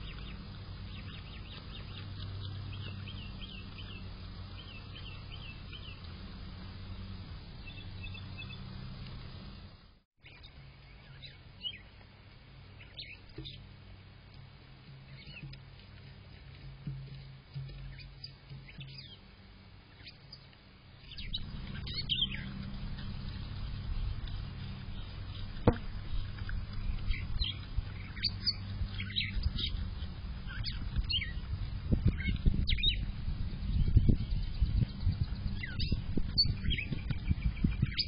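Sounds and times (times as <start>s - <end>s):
small birds chirping: 0.0s - 12.0s, 12.7s - 19.3s, 19.9s - 38.0s
low hum: 0.0s - 38.0s.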